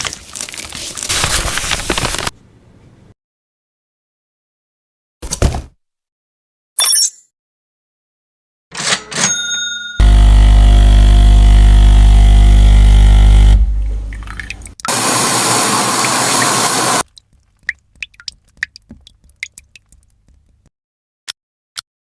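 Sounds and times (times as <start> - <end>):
coffee machine pump humming: 10.0 - 17.0
faint drips: 17.0 - 20.7.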